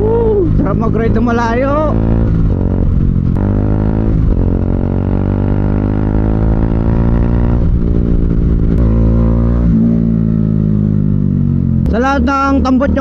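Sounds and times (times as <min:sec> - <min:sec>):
motorcycle engine running loudly: 0:00.0 - 0:13.0.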